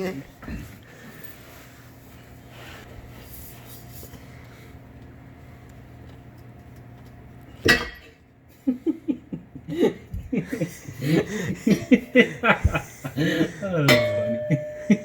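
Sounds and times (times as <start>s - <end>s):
metal exhaust clanking: 7.7s - 8.2s, 13.8s - 15.0s
low hum: 11.1s - 15.0s.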